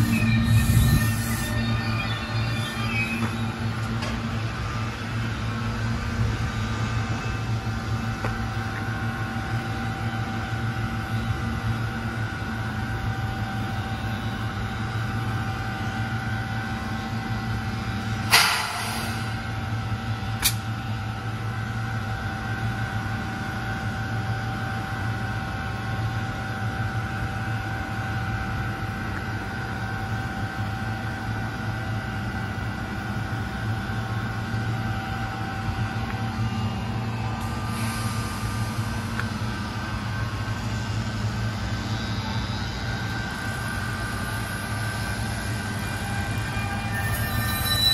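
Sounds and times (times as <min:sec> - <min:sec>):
electric train humming: 0:00.0 - 0:47.9
sharp hiss of air: 0:37.5 - 0:38.9.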